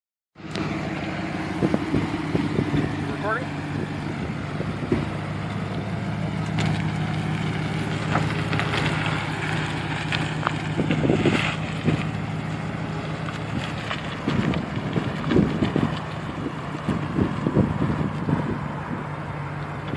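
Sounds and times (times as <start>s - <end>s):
car engine running: 0.4s - 19.9s
engine clicks and knocks: 4.2s - 12.3s, 12.9s - 19.0s, 19.6s - 19.9s.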